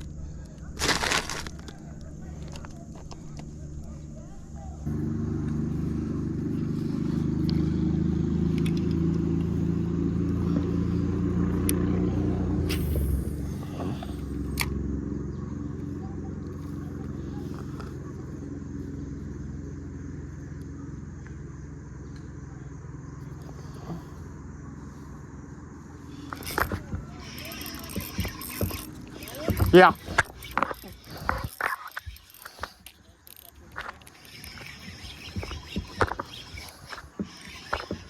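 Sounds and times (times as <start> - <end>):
engine running: 0.0 - 38.0
sharp clicks: 26.1 - 38.0.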